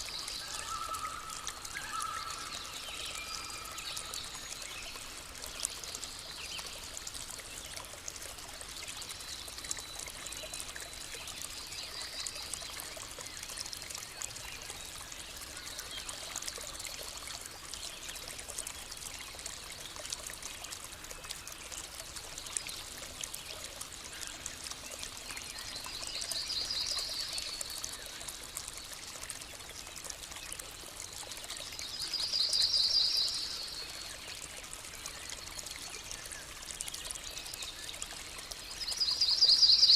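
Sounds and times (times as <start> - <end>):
river stream flowing: 0.0 - 39.9.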